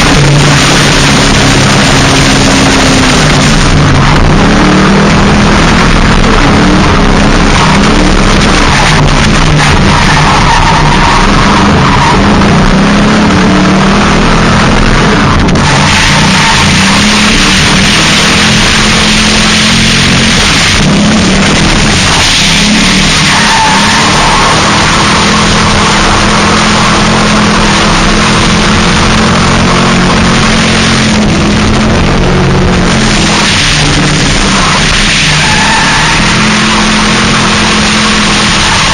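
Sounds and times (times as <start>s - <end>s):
car engine revving: 0.0s - 38.9s
rushing noise: 0.0s - 38.9s
tyre squeal: 21.9s - 27.0s, 34.5s - 38.9s.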